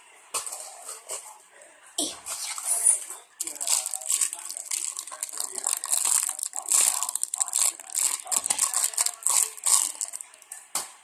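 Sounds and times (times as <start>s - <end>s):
packaging crinkling and rustling: 3.4s - 10.4s.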